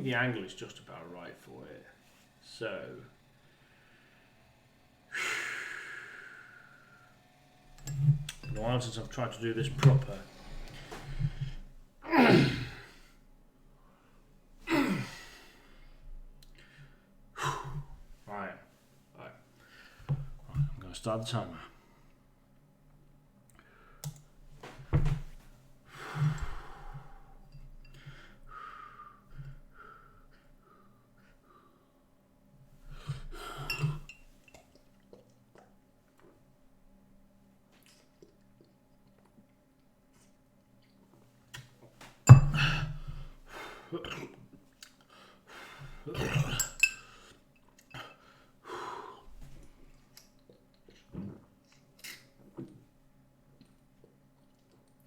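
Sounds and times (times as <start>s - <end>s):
sharp breaths: 5.1s - 7.2s
glass clinking: 7.9s - 8.8s, 33.6s - 34.8s, 42.3s - 42.9s, 46.3s - 47.7s.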